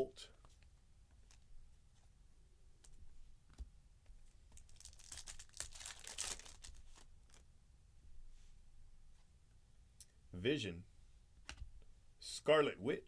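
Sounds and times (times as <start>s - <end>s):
faint clicks of card handling: 2.8s - 4.8s
card pack wrapper crinkling and tearing: 4.6s - 7.4s.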